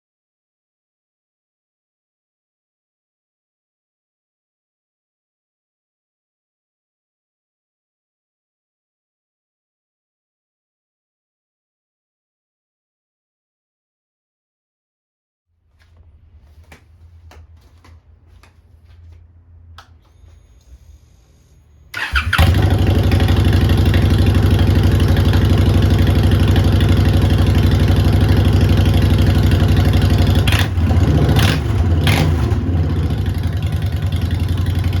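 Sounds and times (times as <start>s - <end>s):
motorcycle engine idling: 21.9s - 35.0s.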